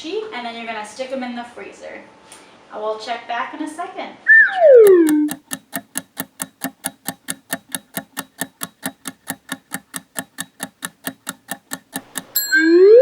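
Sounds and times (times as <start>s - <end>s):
clock ticking: 4.8s - 12.6s.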